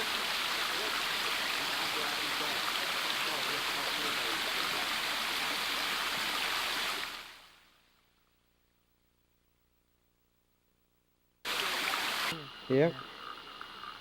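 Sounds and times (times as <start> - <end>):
waterfall and creek rushing: 0.0 - 7.5, 11.5 - 12.4.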